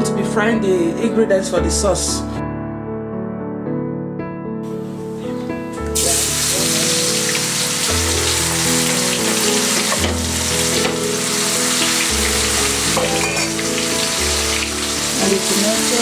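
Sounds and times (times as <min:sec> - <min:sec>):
slow held chords music: 0:04.7 - 0:16.0
onions sizzling in hot oil: 0:06.0 - 0:16.0.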